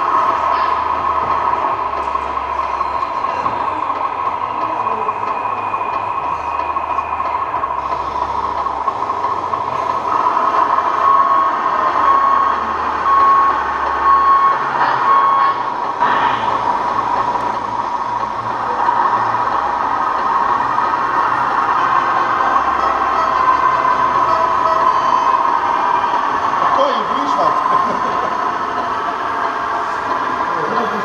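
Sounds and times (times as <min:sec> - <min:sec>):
toy truck motor whine: 0:00.0 - 0:27.4
reversing beeps: 0:01.9 - 0:08.9, 0:09.6 - 0:16.7, 0:22.2 - 0:26.8.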